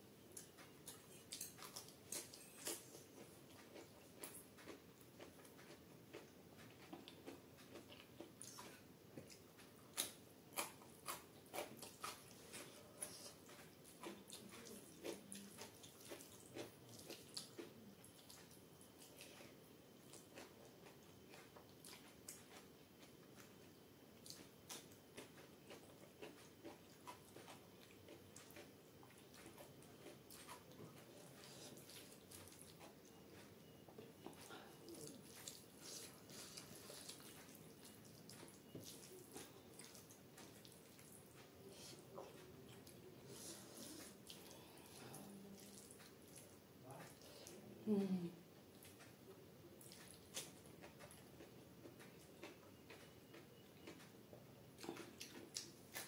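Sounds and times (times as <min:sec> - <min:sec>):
wet chewing and mouth clicks: 0:00.3 - 0:47.6, 0:48.7 - 0:54.2, 0:54.8 - 0:56.0
food squishing mixed by hand: 0:24.2 - 0:47.5.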